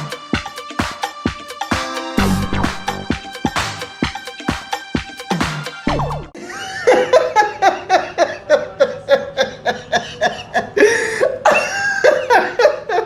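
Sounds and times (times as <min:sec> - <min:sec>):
disco music: 0:00.0 - 0:06.4.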